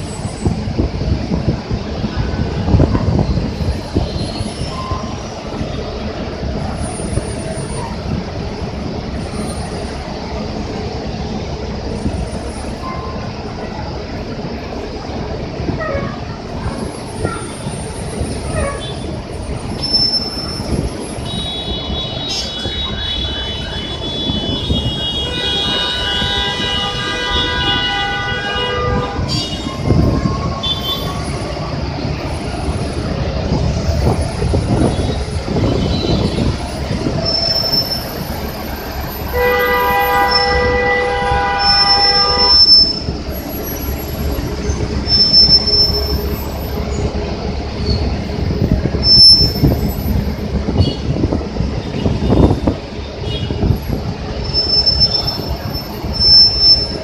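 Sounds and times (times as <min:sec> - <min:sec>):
bus engines rumbling: 0:00.0 - 0:57.0
high-pitched squeal: 0:29.2 - 0:51.1, 0:54.2 - 0:57.0.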